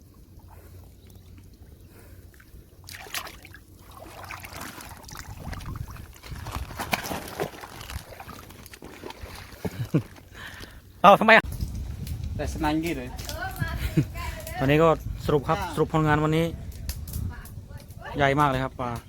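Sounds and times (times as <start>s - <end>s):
water sloshing and splashing: 0.0s - 10.8s.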